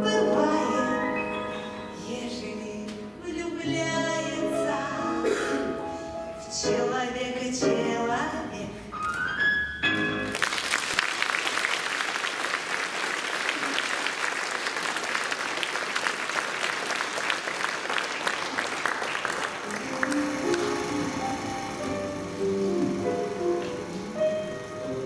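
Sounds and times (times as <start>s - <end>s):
person singing with accompaniment: 0.0s - 8.8s
audience applauding: 10.0s - 25.0s
instrumental music: 19.6s - 25.0s.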